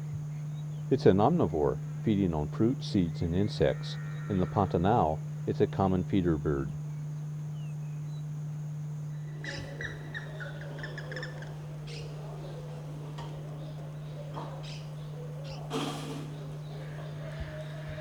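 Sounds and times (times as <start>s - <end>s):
steady low hum: 0.0s - 18.0s
songbird chirping: 5.4s - 8.3s, 9.0s - 18.0s.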